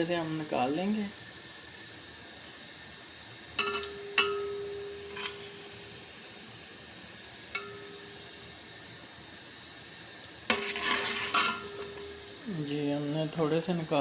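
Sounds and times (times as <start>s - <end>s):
hot oil sizzling: 0.0s - 14.0s
metal spoon knocking on pot: 3.6s - 5.4s, 7.6s - 8.1s.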